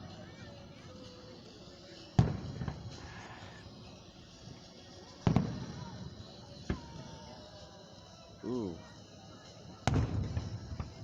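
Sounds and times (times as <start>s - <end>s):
fireworks booming with echo: 1.9s - 7.6s, 9.7s - 11.0s.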